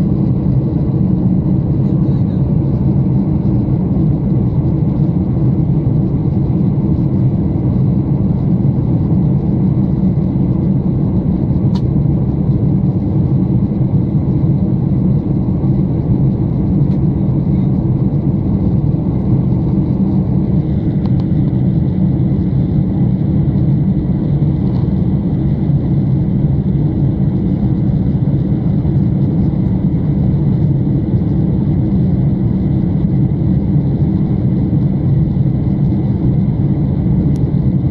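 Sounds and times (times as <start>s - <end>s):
airplane cabin engine rumble: 0.0s - 37.9s.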